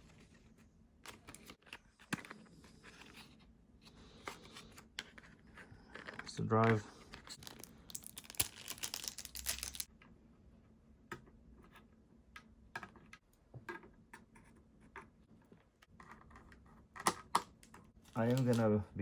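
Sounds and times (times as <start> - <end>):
plastic packaging rustling: 5.8 - 9.9, 18.0 - 18.7.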